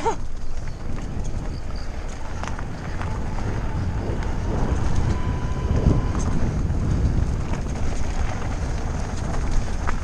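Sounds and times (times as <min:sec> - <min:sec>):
bike tyres rattling over dirt: 0:00.0 - 0:10.0
wind rushing over microphone: 0:00.0 - 0:10.0
faint high whine: 0:01.3 - 0:08.5.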